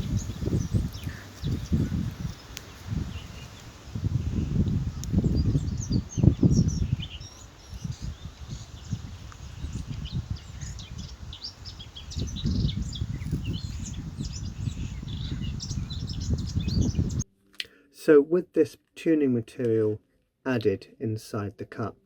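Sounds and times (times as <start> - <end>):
small birds chirping: 0.0 - 17.7.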